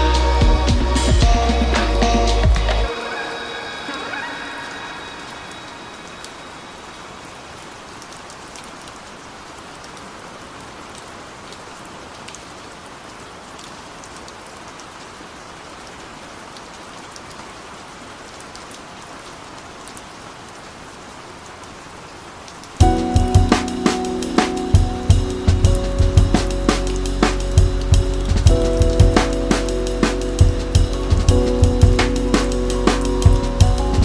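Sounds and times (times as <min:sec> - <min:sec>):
rain hiss: 0:03.9 - 0:34.0.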